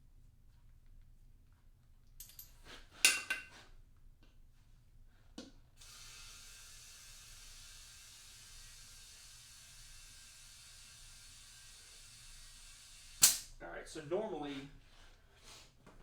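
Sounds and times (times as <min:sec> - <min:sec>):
metallic clinks and clatter: 0:02.2 - 0:03.4
steady hiss: 0:05.8 - 0:14.6.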